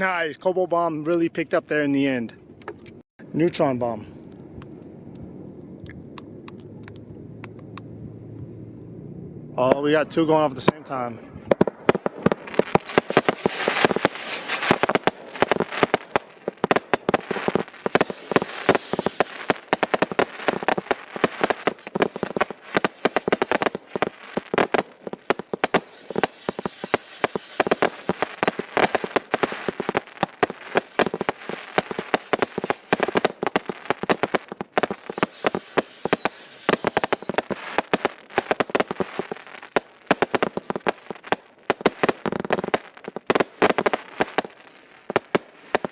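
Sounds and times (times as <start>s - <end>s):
firework barrage: 0.0s - 45.9s.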